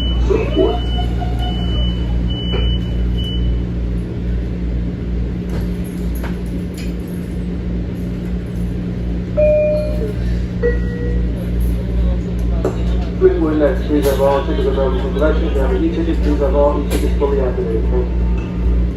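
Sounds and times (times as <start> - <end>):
train rumbling: 0.0 - 18.9
short high beeps: 9.4 - 11.3.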